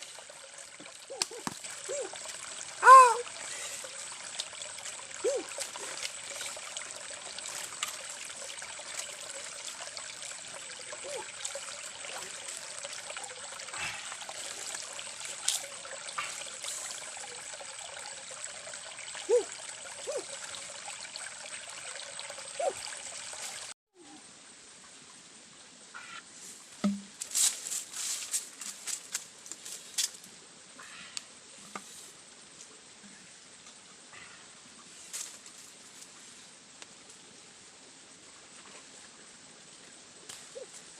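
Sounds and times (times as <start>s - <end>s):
water trickling in a stream: 0.0s - 40.9s
short calls: 2.8s - 3.8s.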